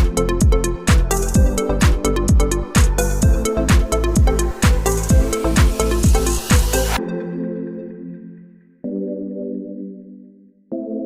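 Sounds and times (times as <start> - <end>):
electronic dance music: 0.0 - 7.0
pounding kick drum: 0.0 - 7.0.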